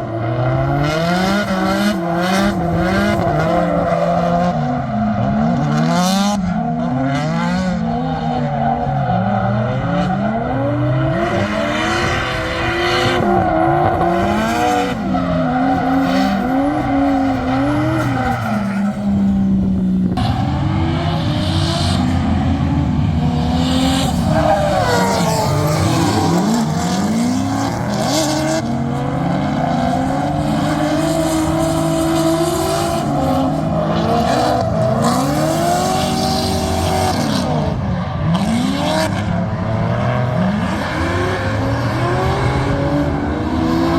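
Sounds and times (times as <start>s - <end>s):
car engine revving: 0.0s - 43.9s
tyre squeal: 23.6s - 27.4s.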